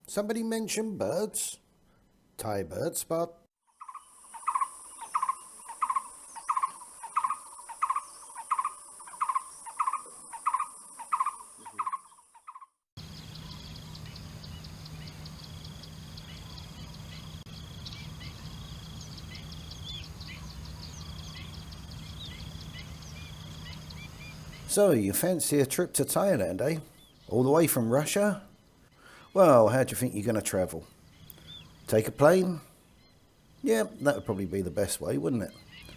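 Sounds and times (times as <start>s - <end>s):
bird hooting: 3.9s - 24.8s
low steady hum: 13.0s - 35.9s
short bird chirps: 30.9s - 31.9s.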